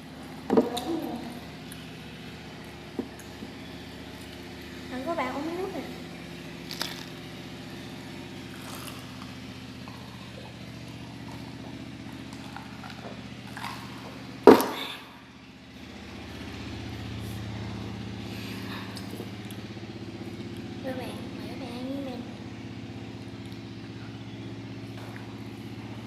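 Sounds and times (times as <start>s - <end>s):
low engine-like hum: 0.0s - 26.0s
sharp loud knock: 14.5s - 14.8s.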